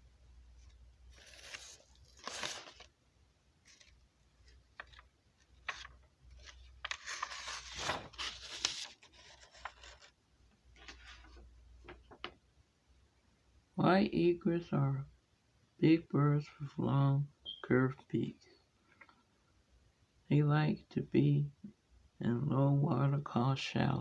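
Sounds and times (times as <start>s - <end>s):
rustling and scraping handling noise: 0.6s - 2.9s, 3.6s - 12.4s.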